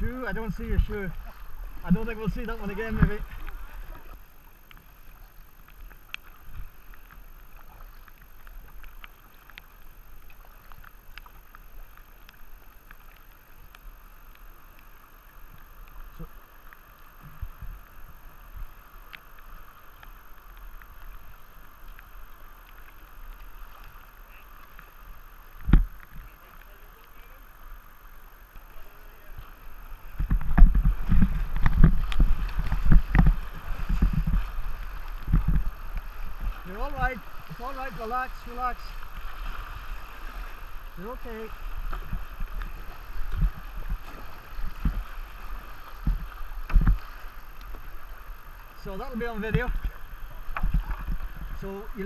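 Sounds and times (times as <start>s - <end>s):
kayak paddle knocks and splashes: 0.8s - 11.6s, 25.5s - 26.7s, 28.6s - 48.3s, 49.1s - 52.0s.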